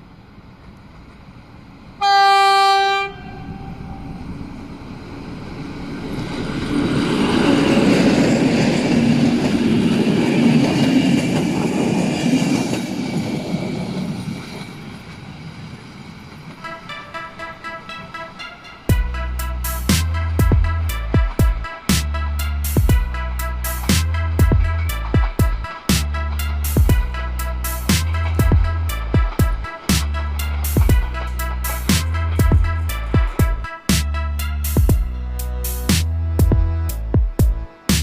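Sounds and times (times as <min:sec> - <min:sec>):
train passing: 0:00.0 - 0:38.0
locomotive horn blast: 0:02.0 - 0:04.4, 0:16.6 - 0:37.9
music: 0:16.6 - 0:38.0.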